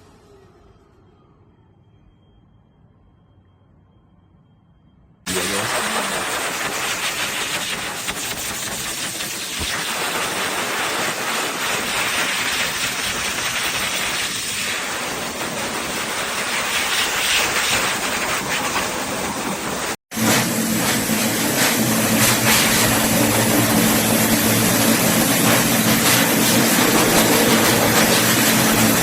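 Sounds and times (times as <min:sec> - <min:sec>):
pet dryer blowing air: 0:05.3 - 0:29.0.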